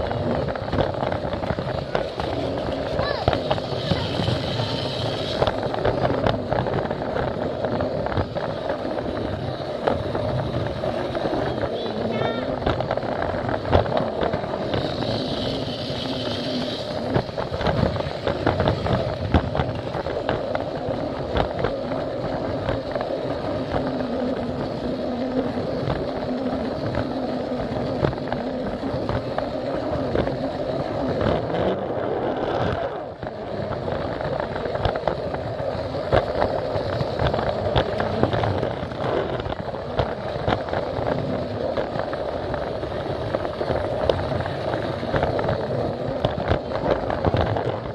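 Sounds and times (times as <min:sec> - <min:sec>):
toy train motor hum: 0:00.0 - 0:47.7.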